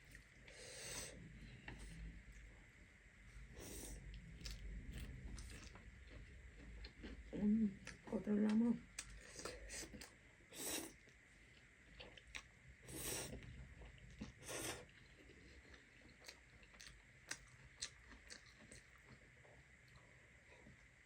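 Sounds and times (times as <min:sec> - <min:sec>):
person chewing: 0:03.6 - 0:08.0, 0:09.0 - 0:19.3.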